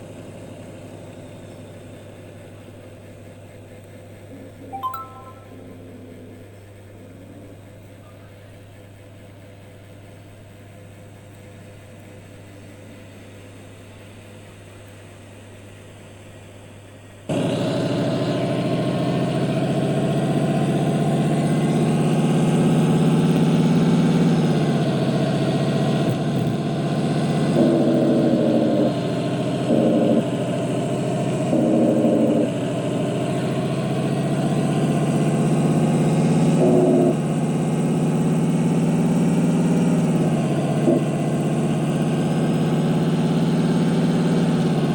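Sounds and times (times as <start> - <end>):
heavy truck engine running: 0.0 - 4.8, 5.5 - 44.9
low steady hum: 4.6 - 7.5
short high tone bursts: 4.7 - 5.7.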